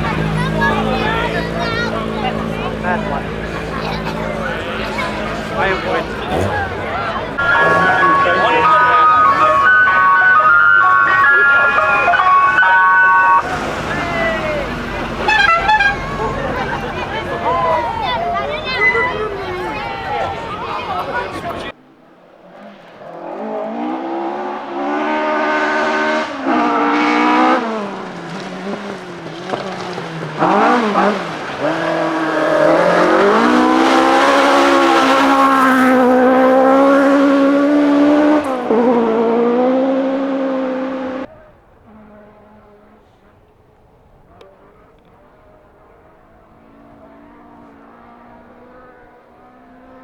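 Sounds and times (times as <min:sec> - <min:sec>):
rally car engine revving past: 0:00.0 - 0:43.6, 0:44.2 - 0:50.0.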